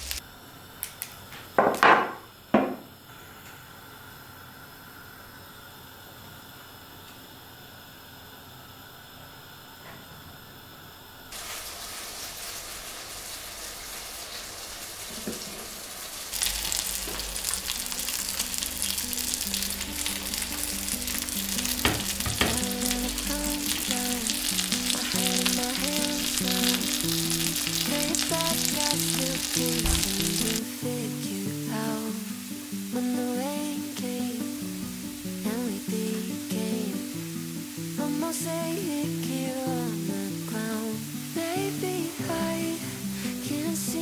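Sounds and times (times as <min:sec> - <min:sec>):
food sizzling in a pan: 0:00.0 - 0:00.2, 0:11.3 - 0:44.0
soft music with plucked notes: 0:17.3 - 0:44.0.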